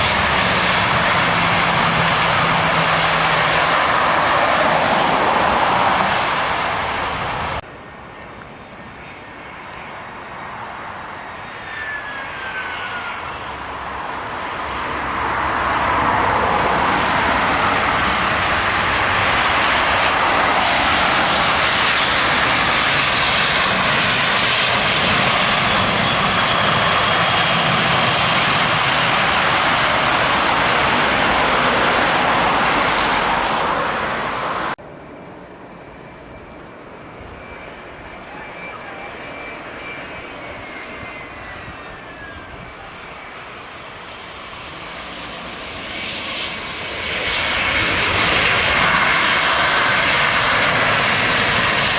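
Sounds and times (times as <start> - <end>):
jet airliner engine noise: 0.0 - 51.9
short falling whine: 34.8 - 43.6.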